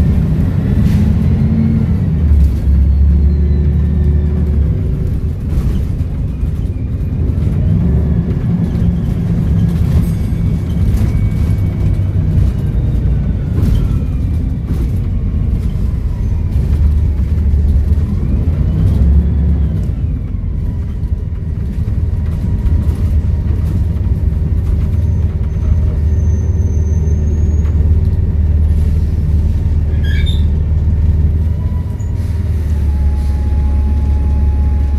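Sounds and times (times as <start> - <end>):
bus diesel engine rumbling: 0.0 - 34.9
faint turbo whistle: 31.6 - 34.9.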